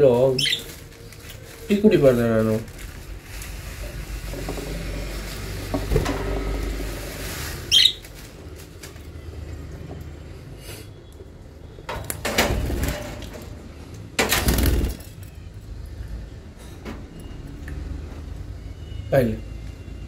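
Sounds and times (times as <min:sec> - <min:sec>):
lovebird shrill chirp: 0:00.4 - 0:00.7, 0:07.7 - 0:08.0.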